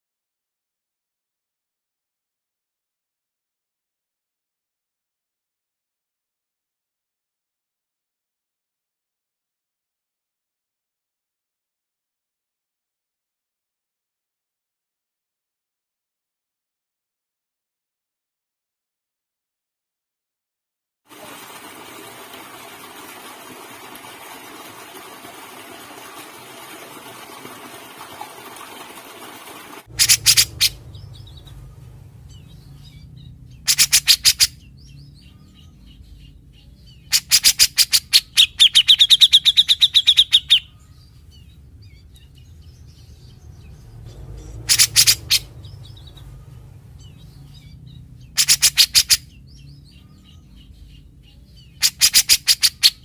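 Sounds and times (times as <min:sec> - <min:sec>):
bird harsh rapid calls: 0:22.8 - 0:41.2, 0:44.4 - 0:50.6, 0:51.7 - 0:53.0.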